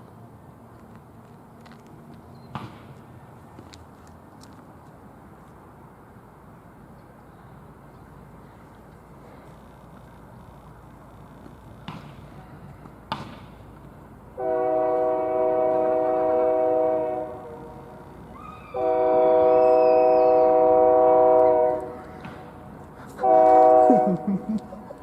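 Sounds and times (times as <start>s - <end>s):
locomotive air horn blasts: 14.4s - 18.0s, 18.6s - 22.4s, 23.1s - 24.3s.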